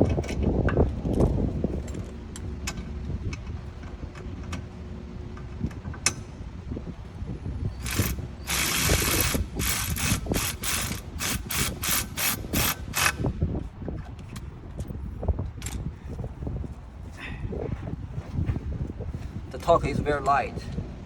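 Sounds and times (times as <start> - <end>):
ratchet wrench clicking: 7.8 - 13.2.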